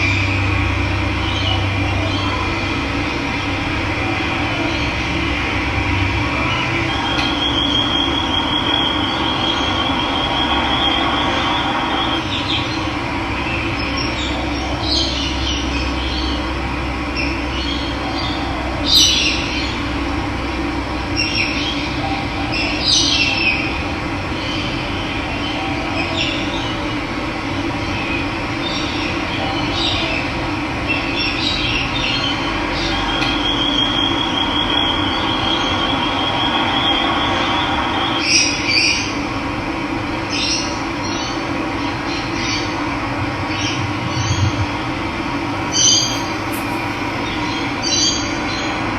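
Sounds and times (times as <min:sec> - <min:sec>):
short bird chirps: 0:45.7 - 0:47.7
bird high rapid trill: 0:45.7 - 0:48.2.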